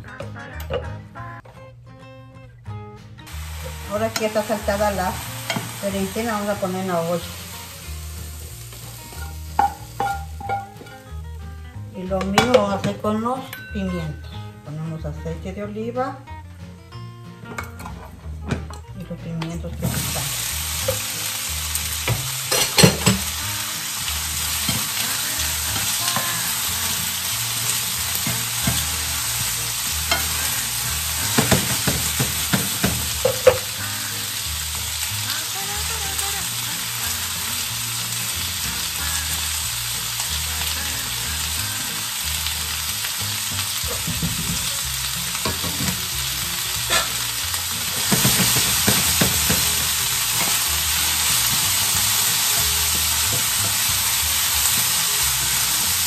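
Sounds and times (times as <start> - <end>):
peppers sizzling in oil: 3.3 - 15.9, 17.4 - 56.0
spoons clattering against pans: 9.1 - 11.1, 22.1 - 23.3, 30.1 - 33.8, 45.4 - 46.0, 47.9 - 50.6.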